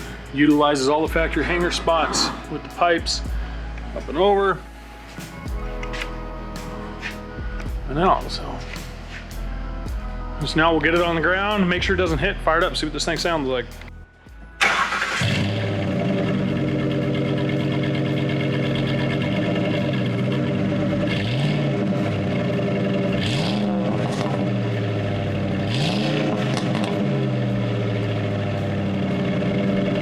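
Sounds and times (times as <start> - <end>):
engine revving: 0.0 - 3.4, 14.6 - 30.0
truck engine starting and idling: 12.7 - 30.0.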